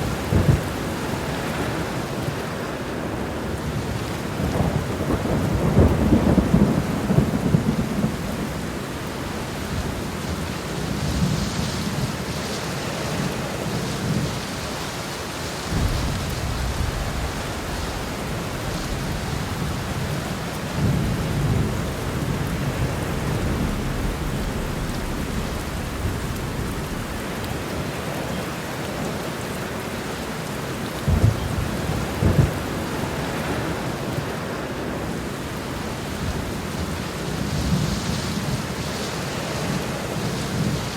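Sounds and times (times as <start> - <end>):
sharp thunderclaps: 0.0 - 1.3, 15.7 - 29.1, 31.1 - 33.8
thunder rumbling: 0.0 - 12.3, 15.6 - 40.9
heavy rain pouring: 0.0 - 40.9.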